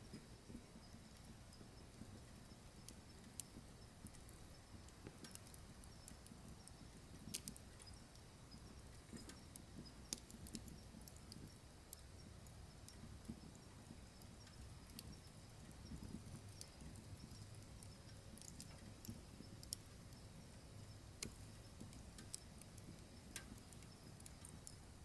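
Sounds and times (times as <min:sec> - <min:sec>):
low rumble of stove: 0:00.0 - 0:25.0
wood fire crackling: 0:00.0 - 0:25.0.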